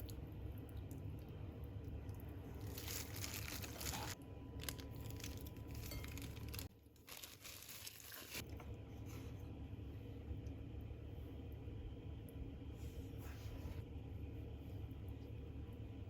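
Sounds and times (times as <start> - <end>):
food crinkling and crunching: 2.4 - 8.5.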